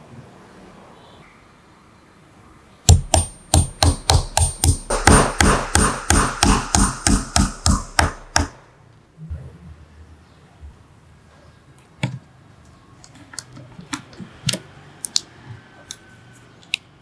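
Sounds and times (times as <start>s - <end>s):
hammer blows: 2.9s - 8.7s.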